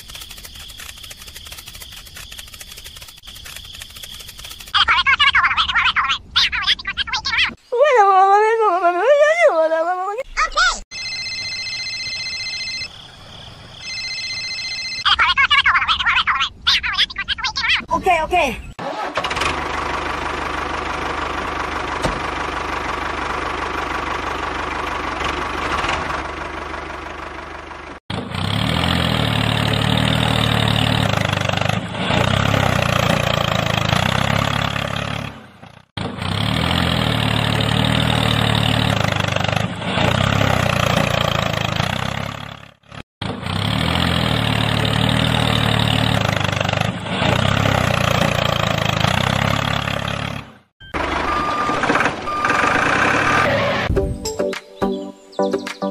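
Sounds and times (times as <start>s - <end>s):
engine running: 18.8s - 54.2s.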